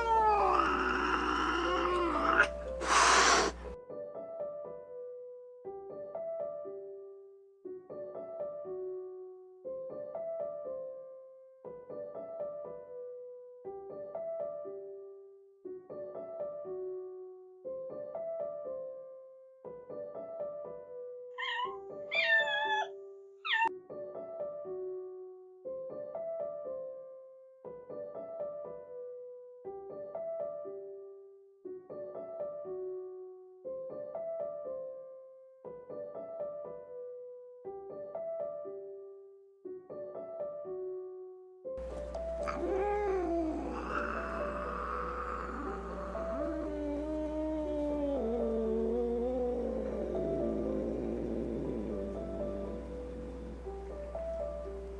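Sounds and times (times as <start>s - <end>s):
kitten meowing: 0.0s - 3.6s, 21.4s - 22.9s, 23.5s - 23.7s, 42.2s - 53.0s
gentle piano music: 0.0s - 54.9s.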